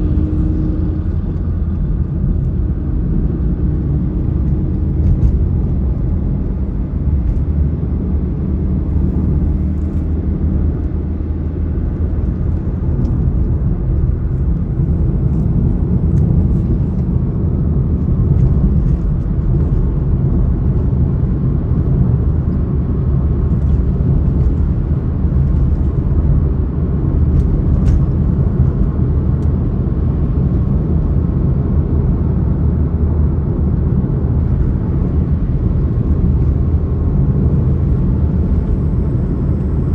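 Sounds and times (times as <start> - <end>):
road and wind noise: 0.0 - 39.9
vehicle rumble: 0.0 - 39.9.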